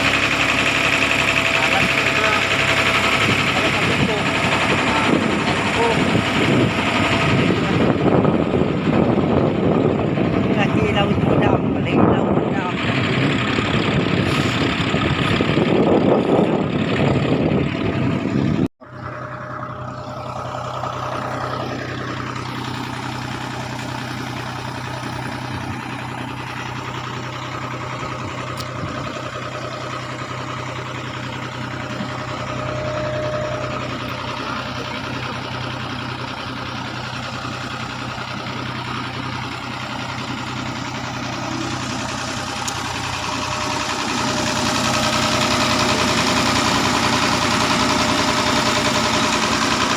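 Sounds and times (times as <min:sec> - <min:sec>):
boat engine running: 0:00.0 - 0:49.9.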